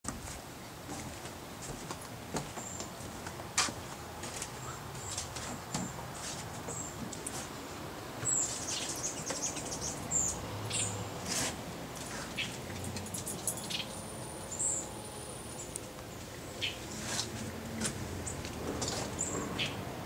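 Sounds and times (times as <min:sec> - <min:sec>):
steady background hiss: 0:00.1 - 0:20.0
birds chirping: 0:02.5 - 0:03.3, 0:04.5 - 0:11.2, 0:12.0 - 0:17.6, 0:19.0 - 0:19.9.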